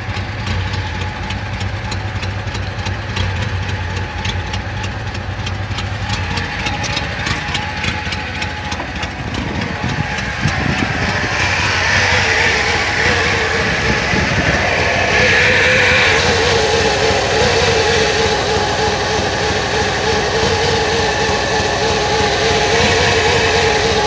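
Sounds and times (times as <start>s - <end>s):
car engine idling: 0.0s - 24.0s
hiss: 0.0s - 24.0s.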